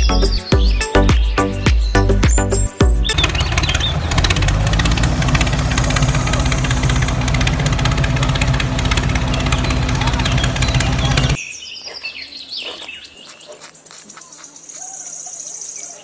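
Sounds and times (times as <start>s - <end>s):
tractor engine running: 3.0s - 11.4s.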